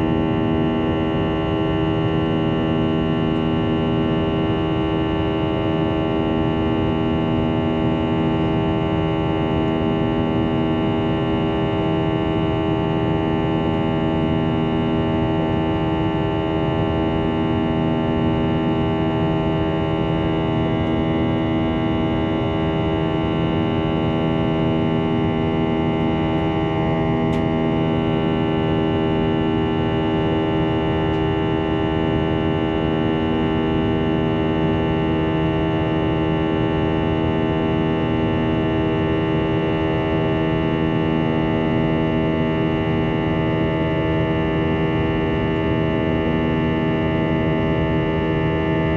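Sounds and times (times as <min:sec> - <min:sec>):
aircraft cabin engine drone: 0:00.0 - 0:48.9.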